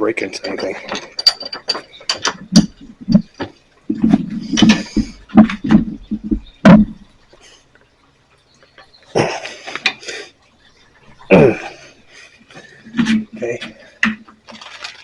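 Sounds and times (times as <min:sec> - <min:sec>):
hand tools clanking on steel rod: 0:00.1 - 0:07.4, 0:08.8 - 0:10.2.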